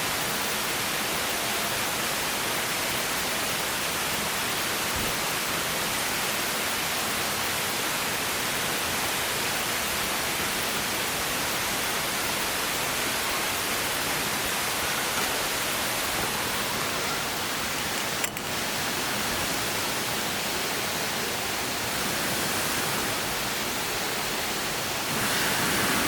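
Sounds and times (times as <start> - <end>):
steak sizzling on griddle: 14.2 - 26.0.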